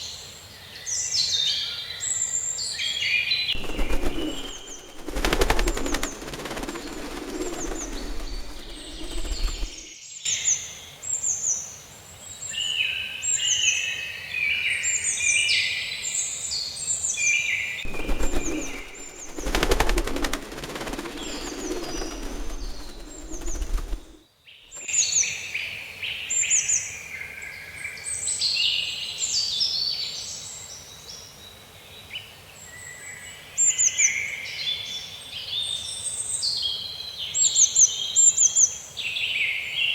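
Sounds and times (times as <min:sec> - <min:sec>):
small birds chirping: 0:03.5 - 0:09.9, 0:17.9 - 0:25.0
dense rapid rattling: 0:03.6 - 0:09.9, 0:17.9 - 0:24.2.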